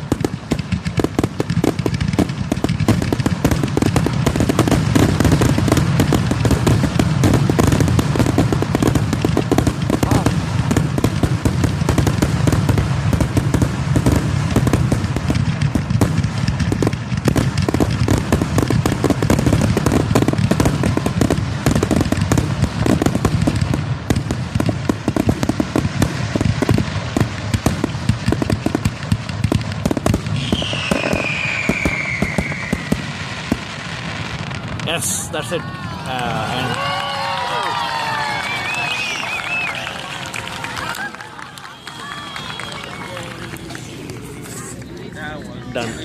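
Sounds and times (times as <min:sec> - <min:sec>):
fireworks bangs and crackles: 0:00.0 - 0:46.0
falling firework whistle: 0:30.3 - 0:34.5, 0:35.6 - 0:44.8.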